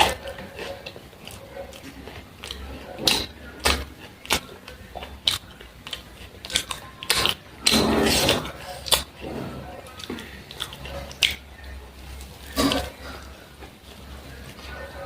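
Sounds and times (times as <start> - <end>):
sharp crunchy clicks: 0.0 - 9.2
chewing and biting food: 0.0 - 15.0.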